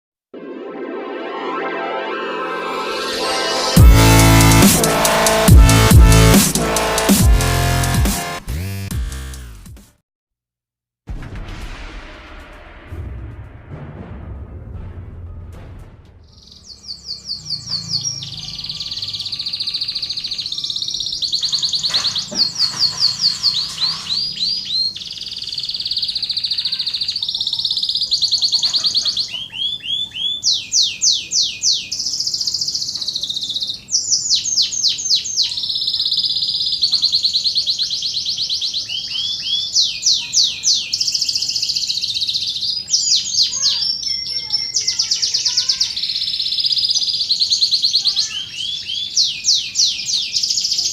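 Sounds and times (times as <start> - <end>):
canary singing: 16.3 - 50.9.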